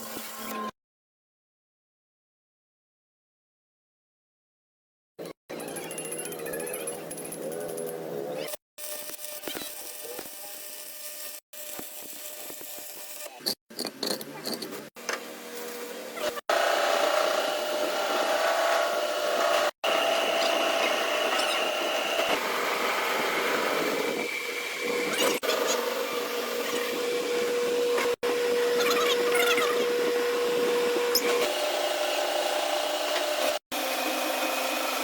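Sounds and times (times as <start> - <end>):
power tool motor whine: 15.5 - 35.0.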